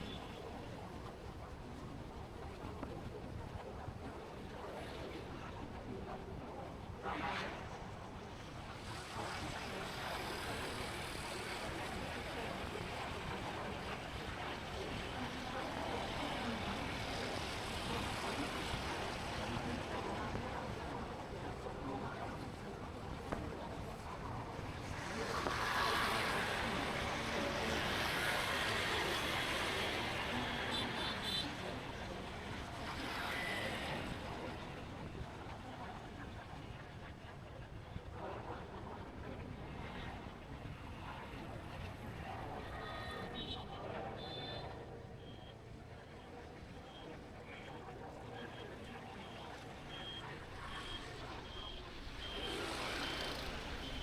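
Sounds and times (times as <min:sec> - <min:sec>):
traffic noise: 0:09.7 - 0:35.0, 0:47.6 - 0:54.0.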